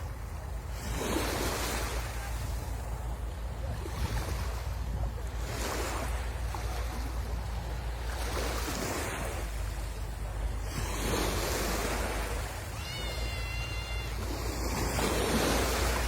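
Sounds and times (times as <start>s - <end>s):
wind rumble on microphone: 0.0s - 12.8s
sea waves breaking on shore: 0.0s - 16.0s.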